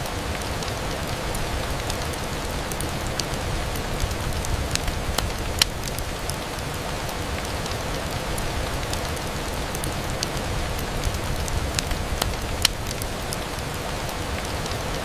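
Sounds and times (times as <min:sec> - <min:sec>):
raindrop clicks: 0:00.0 - 0:15.0
steady rain hiss: 0:00.0 - 0:15.0.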